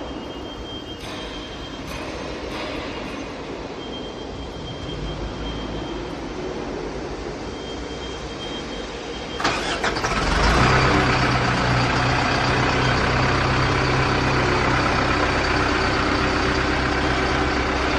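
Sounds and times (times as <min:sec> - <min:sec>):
diesel engine starting and idling: 0:09.3 - 0:17.9.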